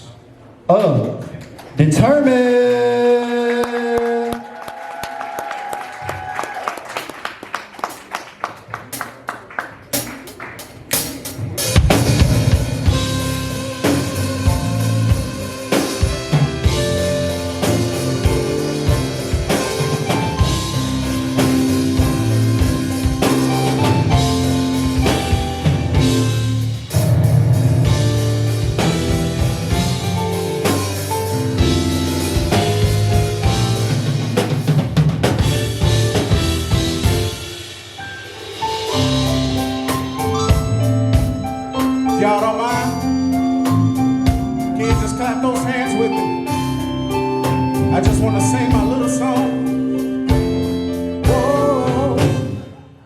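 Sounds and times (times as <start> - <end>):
gospel band playing: 1.9 - 53.0
drum strikes speeding up: 9.9 - 41.4.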